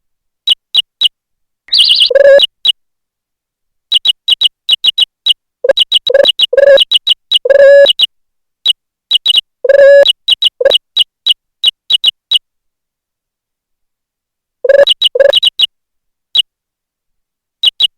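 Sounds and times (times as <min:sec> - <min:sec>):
short high electronic beeps: 0:01.7 - 0:02.5, 0:05.7 - 0:08.1, 0:09.2 - 0:10.8, 0:14.7 - 0:15.7
longer lower beeps: 0:05.7 - 0:08.1, 0:09.7 - 0:10.8, 0:14.7 - 0:15.6.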